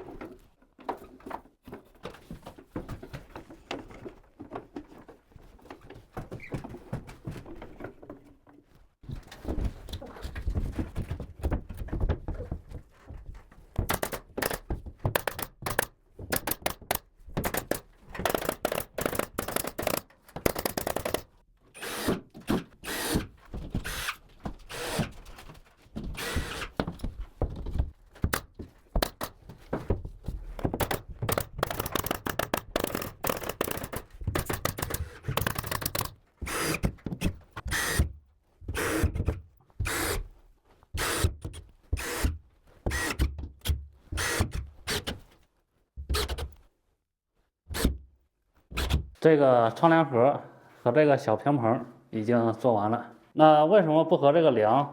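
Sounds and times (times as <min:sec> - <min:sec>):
tools knocking and banging on wood: 0:09.1 - 0:21.4, 0:25.9 - 0:40.1.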